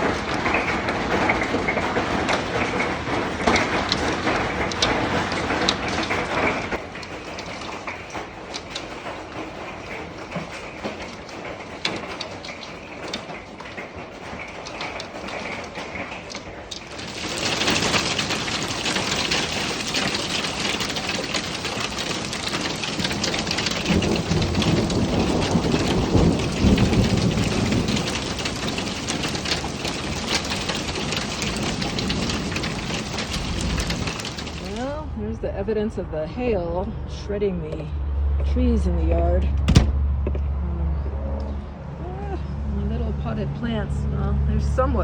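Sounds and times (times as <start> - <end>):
heavy rain and hail: 0.0 - 35.6, 41.9 - 45.0
hailstones popping: 0.0 - 36.0
thunder rumbling: 0.0 - 36.2.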